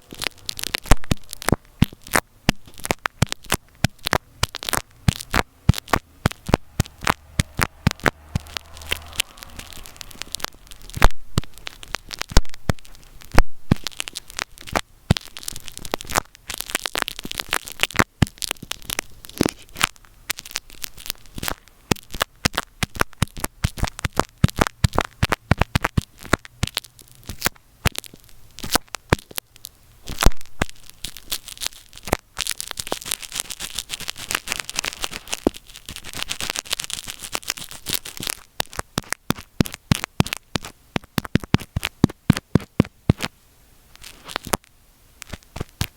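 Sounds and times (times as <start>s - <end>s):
microphone rubbing and crackling: 0.0s - 45.9s
hissing scraping: 4.6s - 13.3s.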